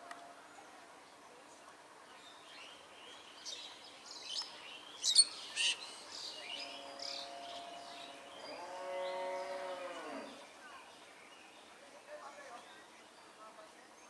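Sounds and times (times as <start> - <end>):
birds chirping: 1.0 - 14.0.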